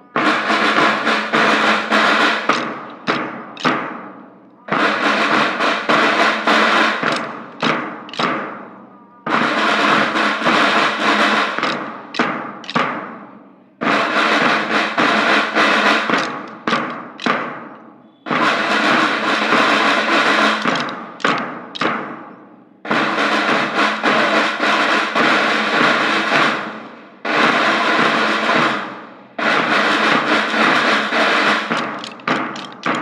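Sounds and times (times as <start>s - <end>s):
drum rolls and cymbal crashes: 0.1s - 13.2s, 13.8s - 22.3s, 22.9s - 33.0s
single drum strikes: 0.2s - 4.2s, 5.9s - 8.6s, 9.9s - 13.2s, 15.8s - 19.0s, 20.2s - 22.3s.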